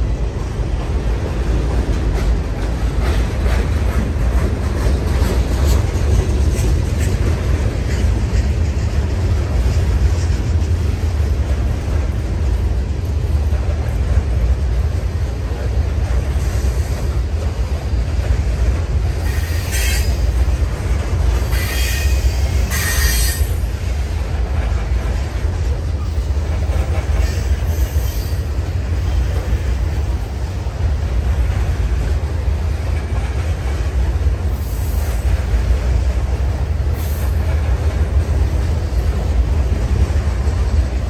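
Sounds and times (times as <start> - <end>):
freight train rumbling past: 0.0 - 41.0
train wheel squeals: 19.1 - 20.5, 21.3 - 23.7, 26.0 - 29.6.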